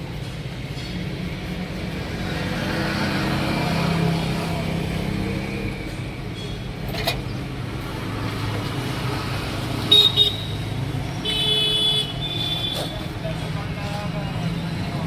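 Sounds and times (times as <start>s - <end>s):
road traffic: 0.0s - 15.0s
vehicle horns tooting: 9.8s - 13.1s.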